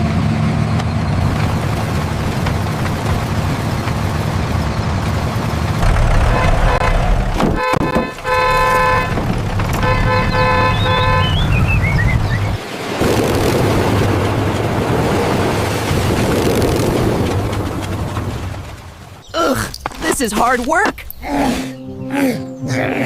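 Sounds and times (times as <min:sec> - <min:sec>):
tractor engine running: 0:00.0 - 0:19.3
tractor horn tooting: 0:06.1 - 0:11.6.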